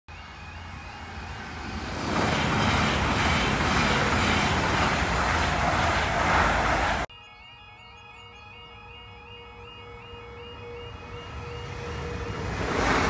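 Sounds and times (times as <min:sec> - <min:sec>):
train passing at speed: 0:00.1 - 0:07.1, 0:10.2 - 0:13.0
level crossing warning alarm: 0:00.1 - 0:13.0.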